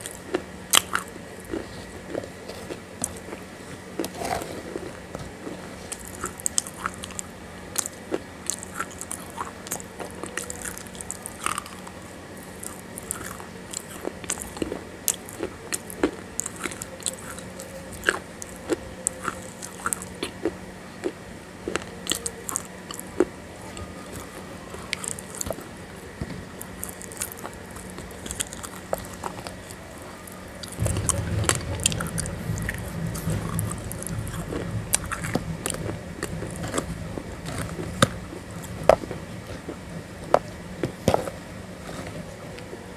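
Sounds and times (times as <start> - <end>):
low hum: 0.0 - 42.9
person chewing crunchy clay: 0.0 - 42.9
low rumble: 30.7 - 40.9.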